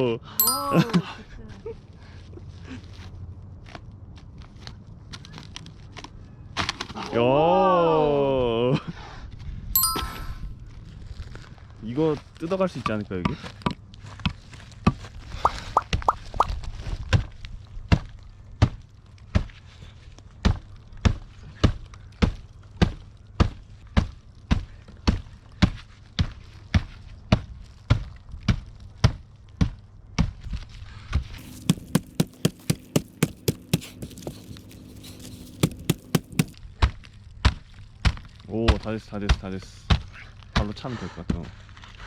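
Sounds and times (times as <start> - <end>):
axe chopping firewood log: 31.4 - 36.5.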